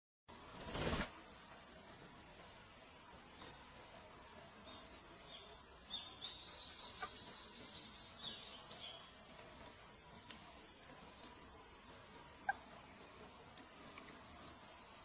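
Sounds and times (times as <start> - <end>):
small bird singing: 4.4 - 15.0
faint click: 10.2 - 10.5.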